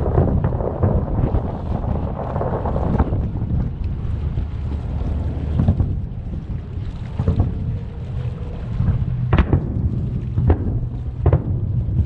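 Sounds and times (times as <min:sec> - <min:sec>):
low rumble: 0:00.0 - 0:12.0
distant fireworks bursting: 0:09.1 - 0:12.0.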